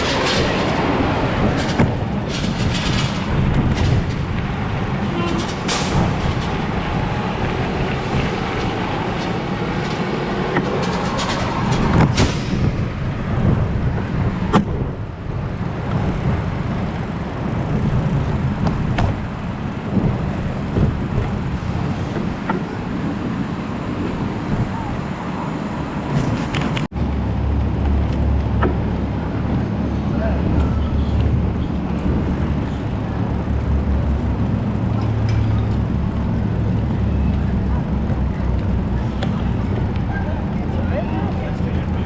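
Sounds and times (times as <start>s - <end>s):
bicycle clicks and rattles: 0.0s - 13.6s, 26.2s - 29.8s, 30.6s - 42.0s
wind and tyre rumble: 0.0s - 42.0s.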